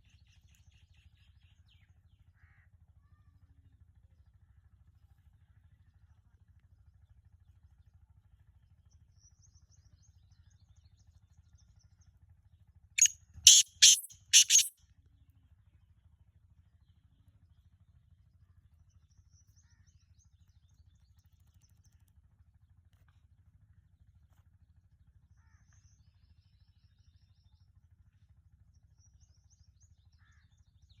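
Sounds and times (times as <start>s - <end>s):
faint high chirps: 13.0s - 14.7s
francolin harsh call: 13.0s - 14.7s.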